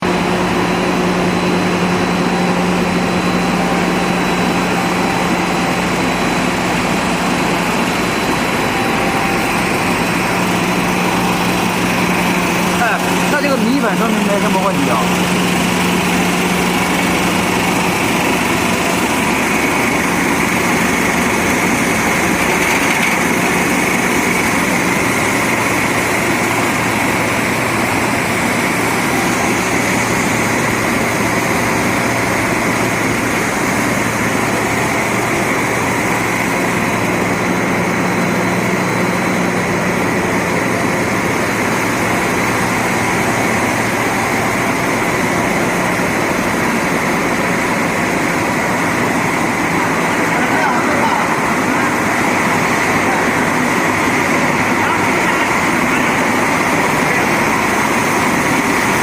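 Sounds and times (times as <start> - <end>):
mechanical din of machinery: 0.0 - 49.8
low motor hum: 0.0 - 59.0.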